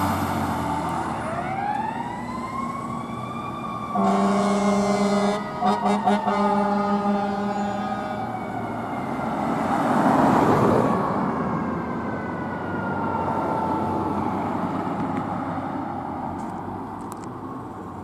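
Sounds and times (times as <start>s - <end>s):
fire engine passing: 0.0s - 18.0s
siren wailing: 0.9s - 9.8s, 10.7s - 14.7s.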